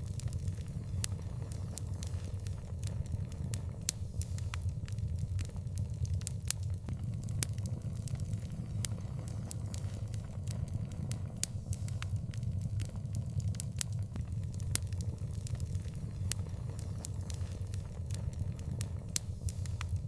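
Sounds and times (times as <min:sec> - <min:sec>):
sharp pops and snaps: 0:06.9 - 0:14.2
wood fire crackling: 0:06.9 - 0:14.7.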